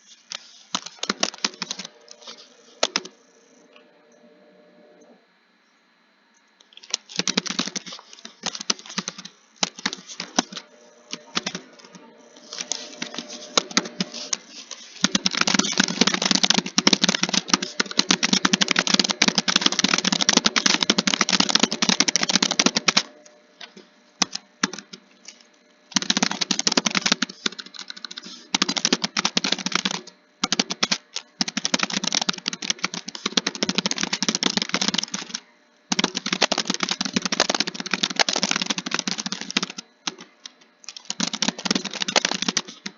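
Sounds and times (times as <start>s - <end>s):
typing on computer keyboard: 0.7s - 3.2s, 6.7s - 23.1s, 24.2s - 25.0s, 25.9s - 42.9s.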